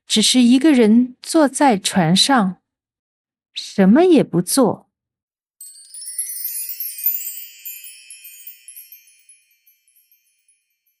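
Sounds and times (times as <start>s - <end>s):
bright tinkling chimes: 5.6s - 11.0s.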